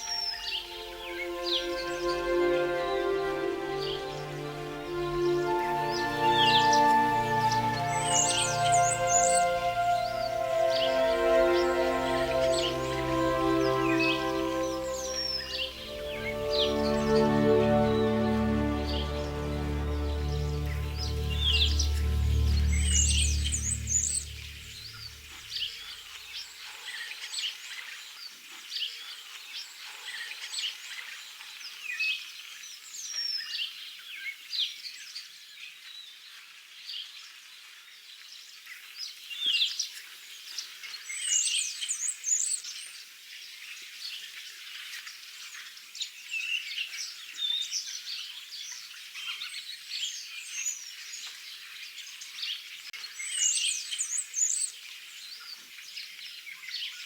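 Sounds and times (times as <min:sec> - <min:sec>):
songbirds chirping and singing: 0:00.0 - 0:25.3.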